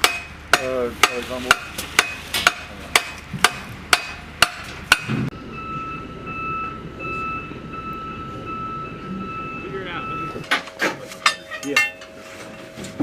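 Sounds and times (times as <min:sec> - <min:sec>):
hammer-like strikes: 0:00.0 - 0:05.4, 0:10.4 - 0:13.0
vehicle reversing alarm beeping: 0:05.3 - 0:13.0.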